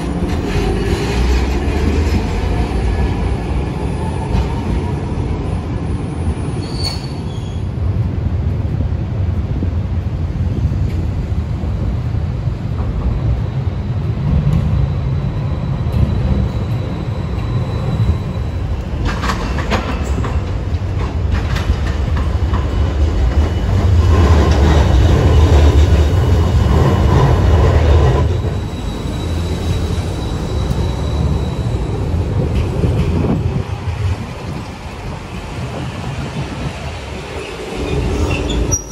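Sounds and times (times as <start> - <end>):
tram rumbling on rails: 0.0 - 38.9
wheels clicking over rail joints: 18.7 - 28.8.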